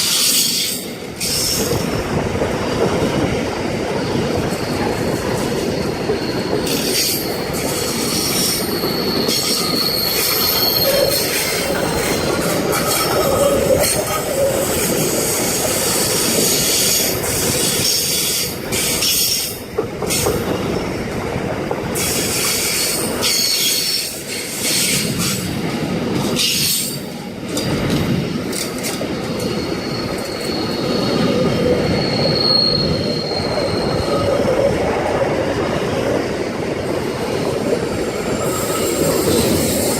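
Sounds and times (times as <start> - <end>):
train wagons rumbling: 0.0 - 39.9
high-pitched wheel squeals: 4.2 - 15.4, 29.3 - 34.7, 38.2 - 39.9.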